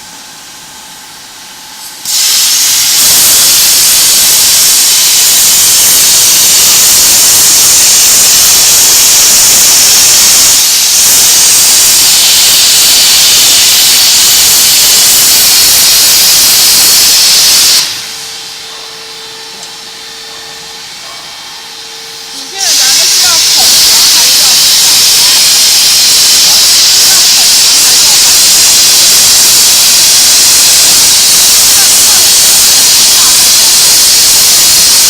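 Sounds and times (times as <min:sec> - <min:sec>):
plasma cutter hissing: 0:01.7 - 0:35.0.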